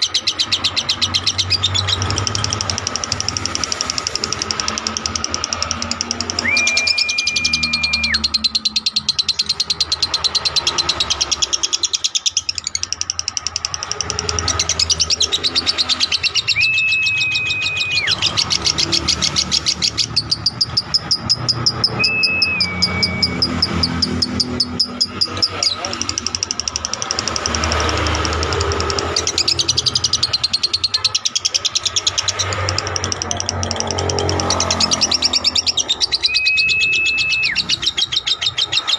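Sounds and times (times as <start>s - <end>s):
lovebird chattering call: 0.0s - 38.9s
short whistled notes: 6.4s - 8.2s, 22.0s - 23.5s.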